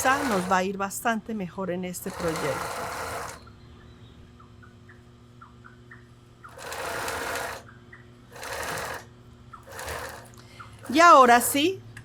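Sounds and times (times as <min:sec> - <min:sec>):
sewing machine stitching: 0:00.0 - 0:00.6, 0:02.0 - 0:03.4, 0:06.5 - 0:07.6, 0:08.3 - 0:11.7
low steady hum: 0:00.0 - 0:12.0.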